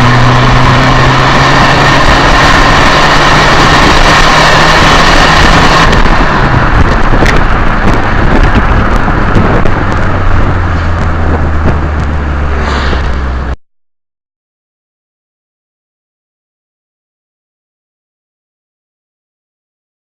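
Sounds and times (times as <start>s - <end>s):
diesel car engine running: 0.0s - 13.6s
high turbo whine: 0.0s - 13.6s.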